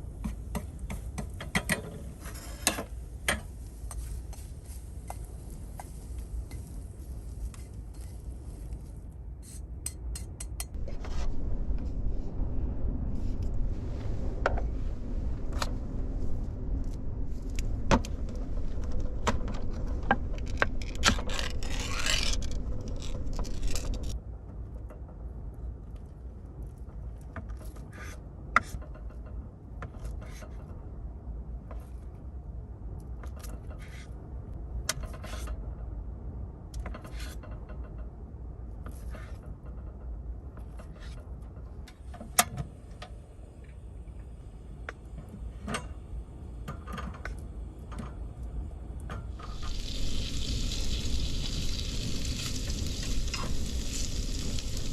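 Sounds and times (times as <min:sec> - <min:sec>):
low steady rumble: 0:10.7 - 0:27.4, 0:34.1 - 0:54.9
steady hum: 0:10.8 - 0:24.2, 0:42.8 - 0:54.9.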